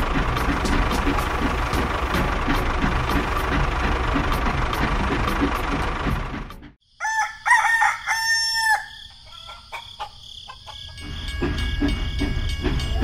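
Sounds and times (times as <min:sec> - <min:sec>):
background music: 0:00.0 - 0:06.8
rooster crowing: 0:06.9 - 0:11.0
rooster clucking: 0:07.0 - 0:11.0.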